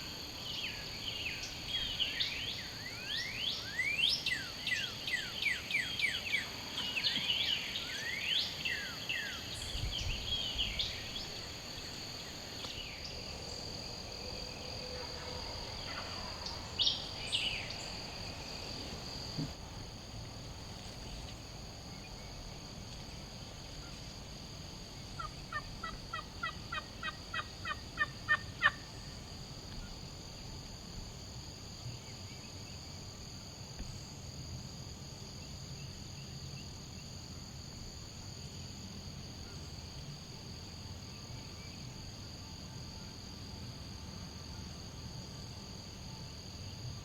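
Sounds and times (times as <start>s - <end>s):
insect trilling: 25.0s - 29.2s.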